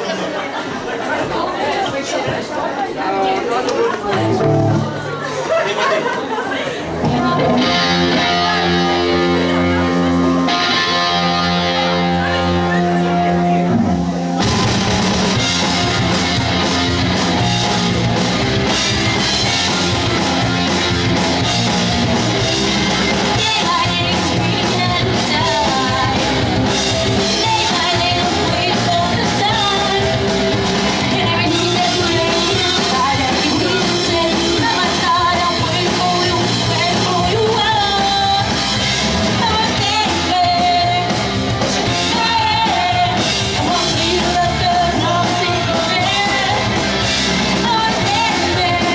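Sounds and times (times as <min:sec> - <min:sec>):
pop-punk band playing live: 0:03.9 - 0:48.9
person singing: 0:07.0 - 0:14.4, 0:23.2 - 0:48.9.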